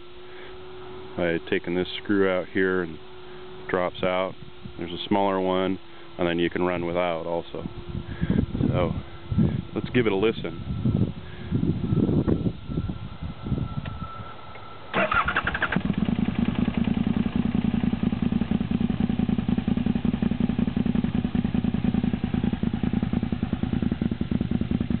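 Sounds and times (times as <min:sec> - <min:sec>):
motorcycle engine starting and idling: 0:14.9 - 0:25.0.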